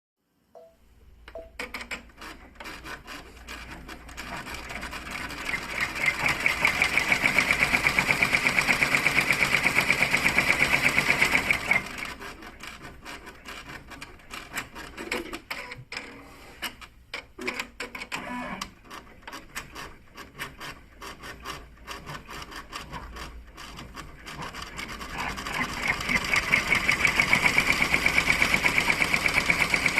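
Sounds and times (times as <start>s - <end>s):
embroidery machine stitching: 1.6s - 16.8s, 17.4s - 29.9s.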